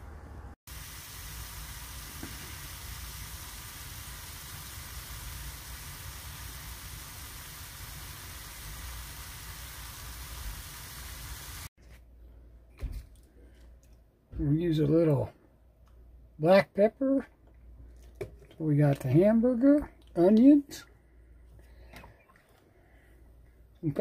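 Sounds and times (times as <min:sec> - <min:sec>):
meat and onions sizzling: 0:00.7 - 0:11.7.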